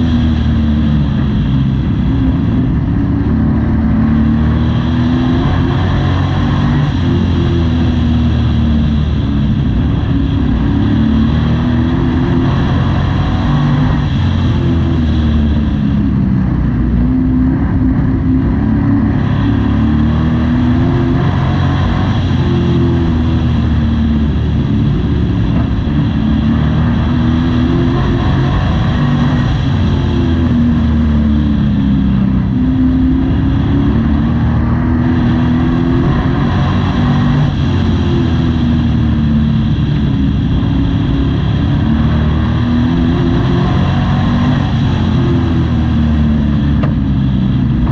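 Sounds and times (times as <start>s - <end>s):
race truck engine revving: 0.0s - 47.9s.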